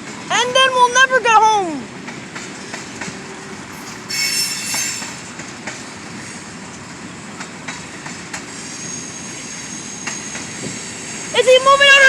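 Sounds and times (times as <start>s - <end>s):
train rumbling past: 0.0s - 12.0s
metallic wheel squeal: 3.7s - 5.4s.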